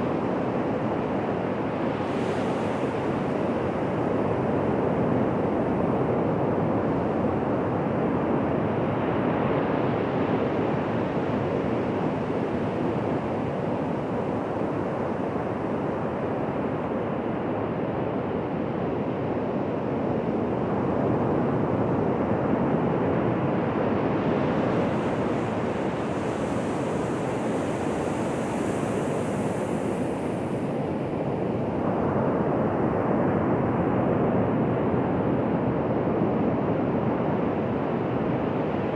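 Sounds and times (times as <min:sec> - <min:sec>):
ocean surf washing on beach: 0:00.1 - 0:05.8, 0:23.8 - 0:32.3.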